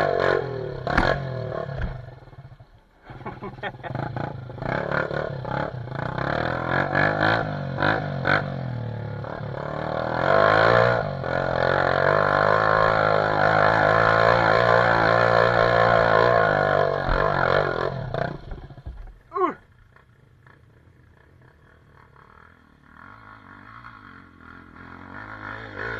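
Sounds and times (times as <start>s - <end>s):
dirt bike engine revving: 0.0s - 25.9s.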